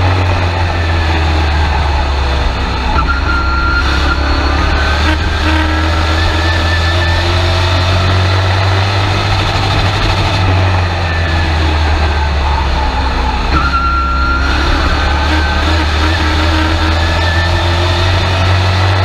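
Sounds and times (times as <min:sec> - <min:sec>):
truck engine drone: 0:00.0 - 0:19.0
faint whine: 0:00.6 - 0:15.6.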